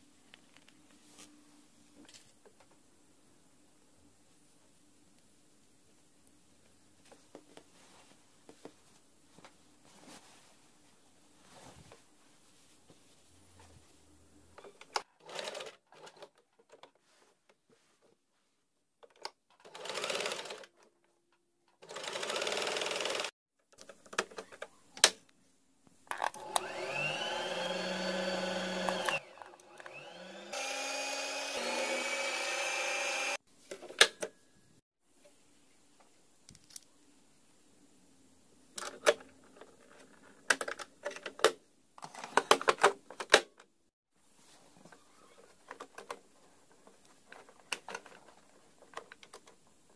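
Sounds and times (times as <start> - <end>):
sewing machine stitching: 19.6 - 20.7, 21.8 - 23.3.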